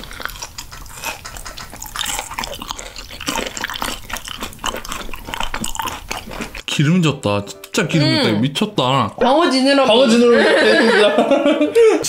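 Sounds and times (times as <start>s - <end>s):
wet chewing mouth clicks: 0.0s - 6.6s.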